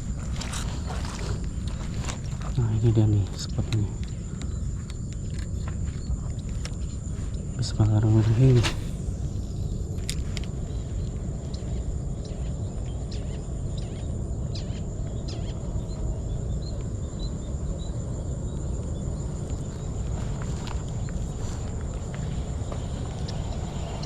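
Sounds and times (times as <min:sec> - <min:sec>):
high-pitched insect drone: 0:00.0 - 0:24.0
wind rumble on microphone: 0:00.0 - 0:24.0
faint bird chirps: 0:00.4 - 0:19.0
faint ticks: 0:03.3 - 0:07.7.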